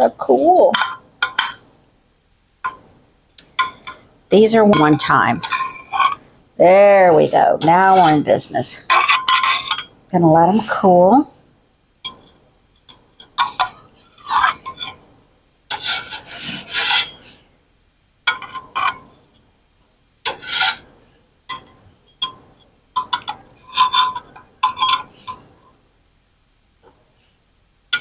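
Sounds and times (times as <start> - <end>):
utensil scraping baking pan: 3.4 - 11.1, 13.2 - 15.0, 15.7 - 17.4, 20.2 - 20.9, 23.0 - 25.6.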